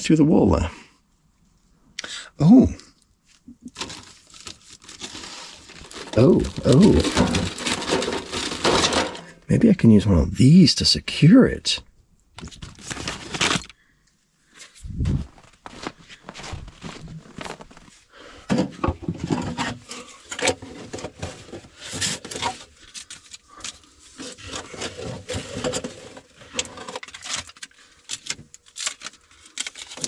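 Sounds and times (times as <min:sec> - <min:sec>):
pipe scraping and crinkling: 0:03.2 - 0:09.6, 0:12.4 - 0:13.8, 0:14.5 - 0:30.0.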